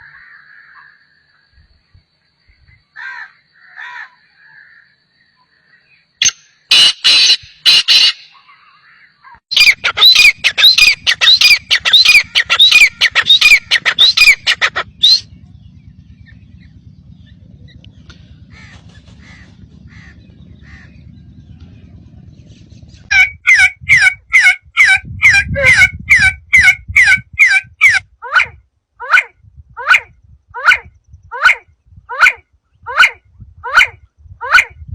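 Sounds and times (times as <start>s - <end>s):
bird calling rapidly: 6.2s - 15.3s, 18.4s - 21.0s
faint low hum: 14.8s - 23.1s.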